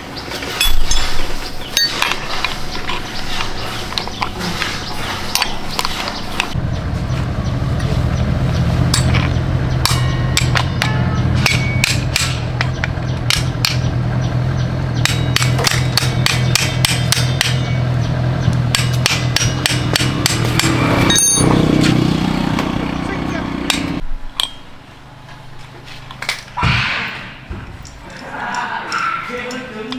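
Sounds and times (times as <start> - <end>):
steady low hum: 0.0 - 21.5.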